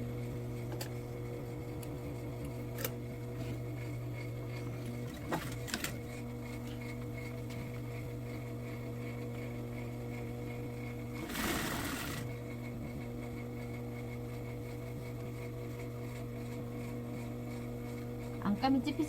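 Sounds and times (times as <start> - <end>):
sewing machine motor humming: 4.6 - 7.4, 10.9 - 12.6.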